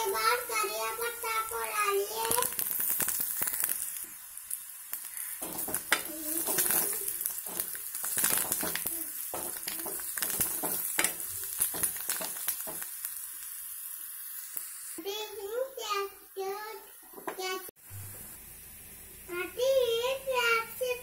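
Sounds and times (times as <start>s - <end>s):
vegetables sizzling in hot oil: 0.0s - 21.0s
spatula scraping a pan: 5.2s - 12.8s.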